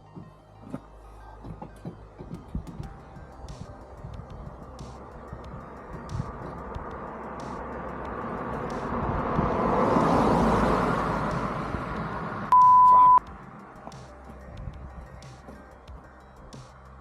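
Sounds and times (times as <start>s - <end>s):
passing road vehicle: 3.2s - 14.8s
electronic beep: 12.5s - 13.2s.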